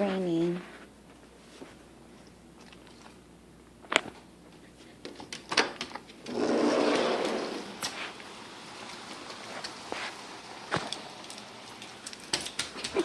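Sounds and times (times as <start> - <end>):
rain hissing: 6.3 - 12.4.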